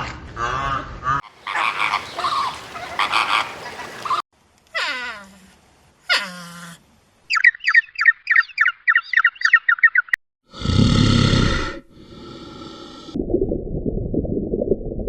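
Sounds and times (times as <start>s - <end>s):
bird chirping rapidly: 7.3s - 10.2s
deep rough animal call: 10.5s - 13.2s.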